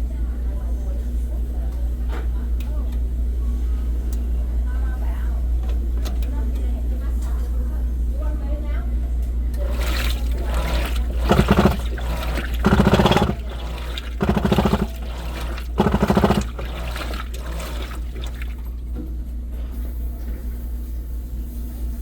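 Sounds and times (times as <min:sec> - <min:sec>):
washing machine hum: 0:09.4 - 0:19.4
rattling grinding bursts: 0:09.6 - 0:18.5.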